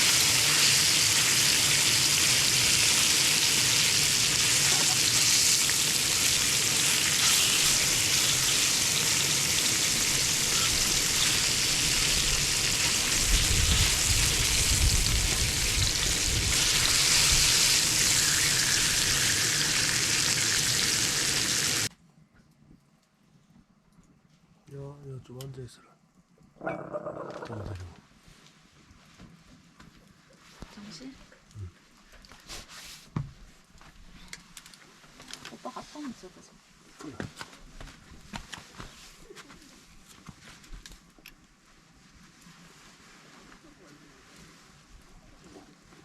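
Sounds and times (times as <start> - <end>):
food sizzling in hot oil: 0.0 - 21.9.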